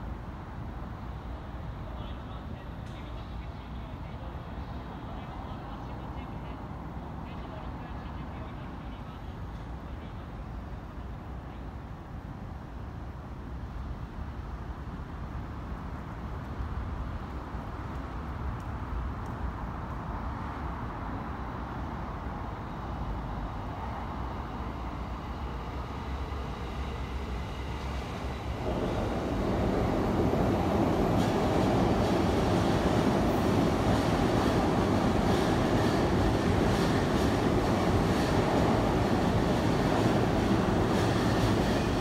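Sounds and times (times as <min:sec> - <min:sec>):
train wheels rolling on rail: 0:23.2 - 0:42.0.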